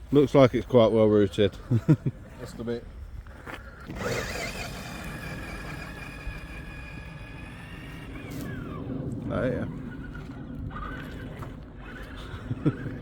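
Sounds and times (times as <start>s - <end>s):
rc car motor whining: 3.6s - 13.0s.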